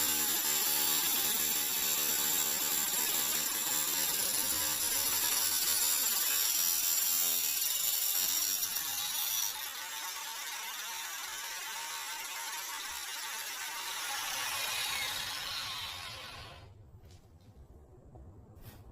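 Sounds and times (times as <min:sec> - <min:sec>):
angle grinder cutting metal: 0:00.0 - 0:16.7.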